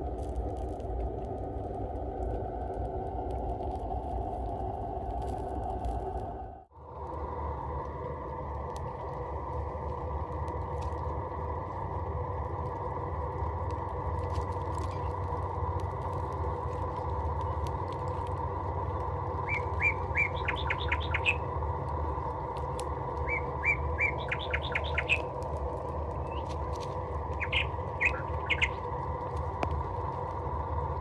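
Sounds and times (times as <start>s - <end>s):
background hum: 0.0s - 31.0s
bird chirping: 19.4s - 21.5s, 23.2s - 25.3s, 27.3s - 28.9s.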